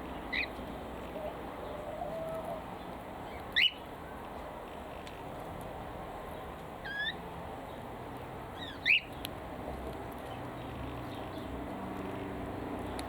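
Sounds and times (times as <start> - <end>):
sharp upward bird chirp: 3.6 - 3.8, 8.6 - 9.1.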